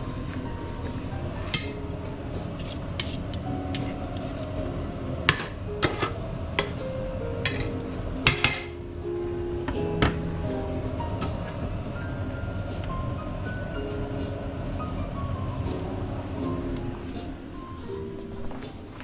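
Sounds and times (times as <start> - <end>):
light background music: 0.0 - 19.0
utensils and dishes clinking: 1.4 - 4.7, 5.3 - 8.8.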